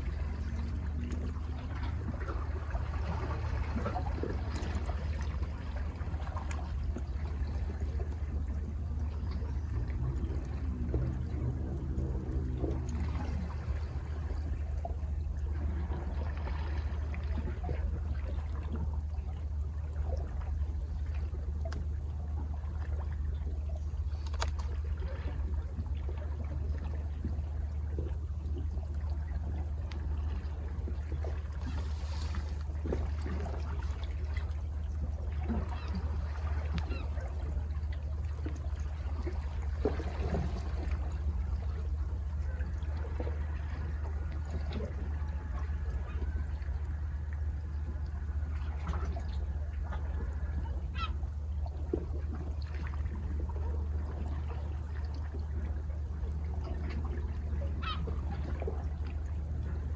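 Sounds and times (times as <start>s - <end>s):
low rumble: 0.0s - 59.9s
sea water washing against rocks: 20.1s - 51.1s.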